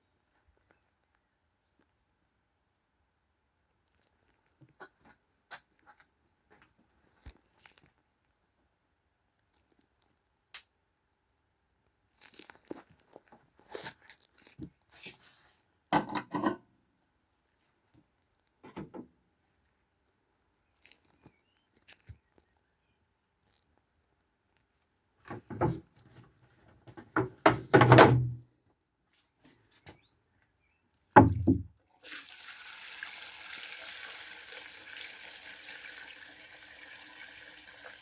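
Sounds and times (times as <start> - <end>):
rustling crunching scrapes: 12.2 - 15.7, 20.3 - 22.7.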